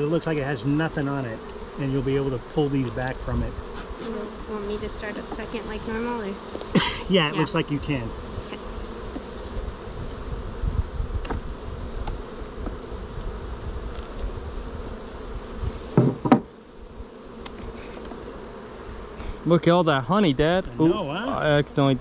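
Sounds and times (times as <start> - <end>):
honeybees buzzing: 0.0 - 22.0
knock and scrape: 15.9 - 16.5.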